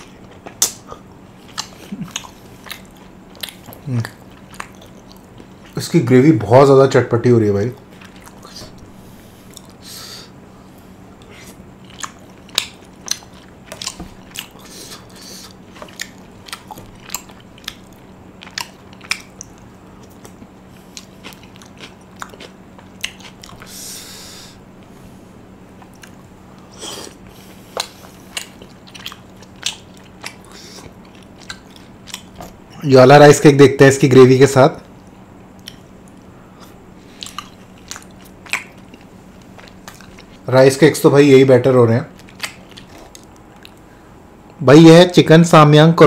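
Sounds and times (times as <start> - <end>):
person chewing with lip smacks: 0.0 - 5.8, 7.8 - 9.9, 11.2 - 23.8, 25.7 - 32.7, 34.8 - 40.5, 42.1 - 43.9
breathy hiss: 8.4 - 11.6, 14.6 - 15.6, 23.6 - 25.4, 30.4 - 31.0.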